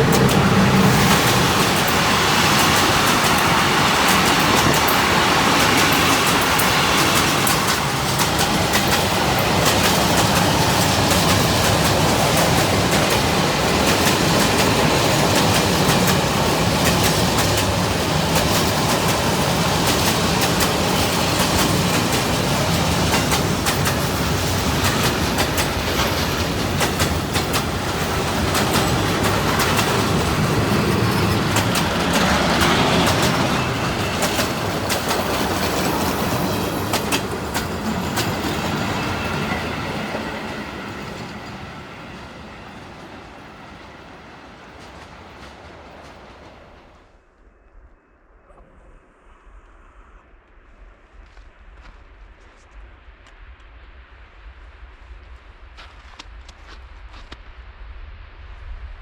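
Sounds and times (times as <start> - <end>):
train running gear rumble: 0.0 - 47.0
train wheels clattering: 0.0 - 47.0.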